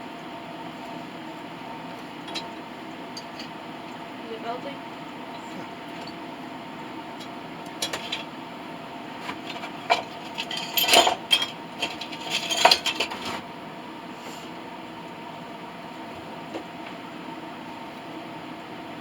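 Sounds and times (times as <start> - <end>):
steady hum: 0.0 - 19.0
metal clinking and scraping: 7.8 - 8.3, 9.3 - 13.4.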